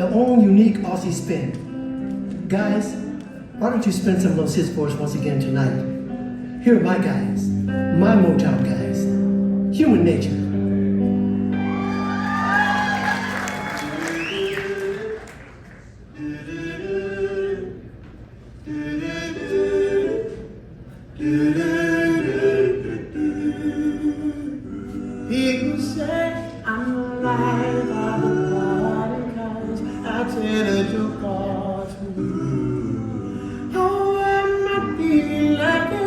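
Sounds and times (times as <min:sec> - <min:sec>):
male vocal group singing in harmony: 0:16.1 - 0:36.0.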